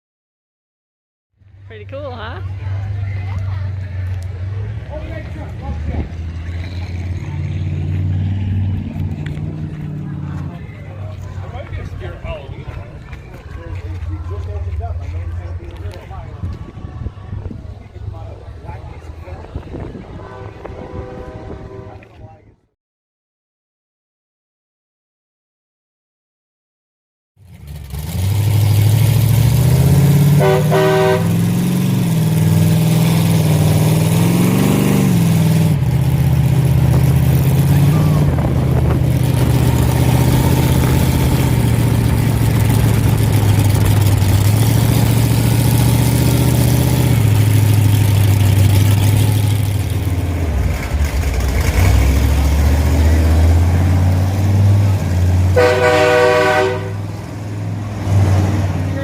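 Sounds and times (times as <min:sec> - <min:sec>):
monster truck engines revving: 0:01.5 - 0:22.3, 0:27.4 - 0:59.0
horn blast: 0:19.8 - 0:22.4, 0:30.3 - 0:31.6, 0:55.5 - 0:57.2.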